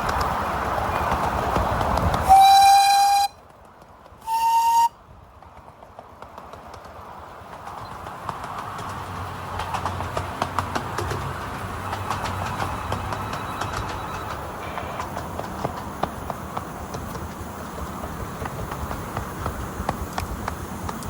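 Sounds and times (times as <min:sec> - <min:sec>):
train clicking over rails: 0:00.0 - 0:21.0
locomotive whistle blasts: 0:02.3 - 0:03.4, 0:04.3 - 0:04.9.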